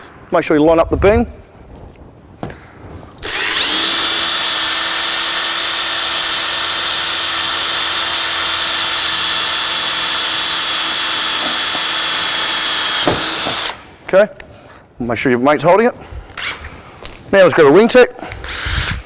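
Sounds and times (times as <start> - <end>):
electric drill whining: 3.2 - 13.8, 18.4 - 19.0.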